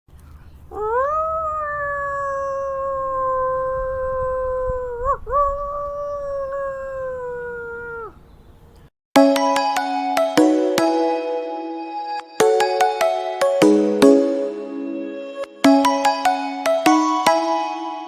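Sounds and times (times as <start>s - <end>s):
animal howl: 0.7s - 8.6s.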